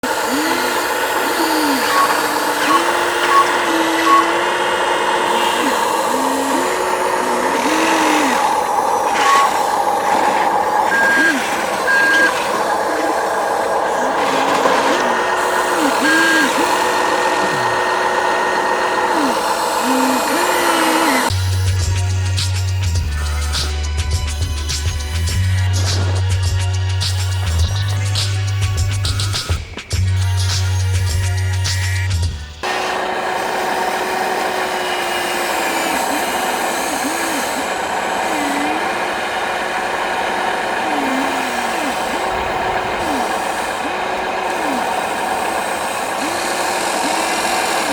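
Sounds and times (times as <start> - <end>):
electric motors and gears whirring: 0.0 - 47.9
simulated diesel engine revving: 0.0 - 47.9
reversing beep: 1.4 - 4.4, 9.2 - 9.7, 10.9 - 13.3, 15.7 - 17.8.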